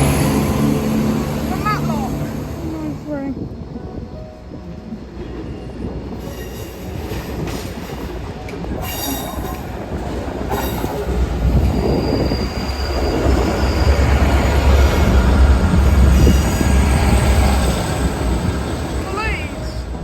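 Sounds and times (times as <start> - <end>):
heavy low train rumble: 0.0 - 20.0
train wheels squealing: 10.5 - 14.9.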